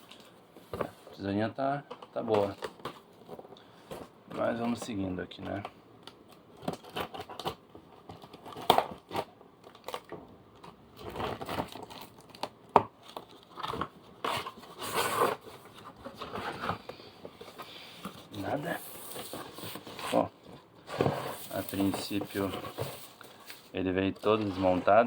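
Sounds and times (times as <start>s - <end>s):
packaging crinkling and tearing: 6.1s - 16.9s, 21.1s - 24.8s.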